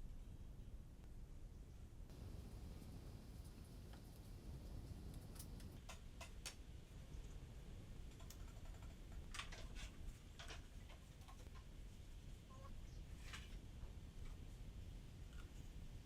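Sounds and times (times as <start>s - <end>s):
low background rumble: 0.2s - 5.8s.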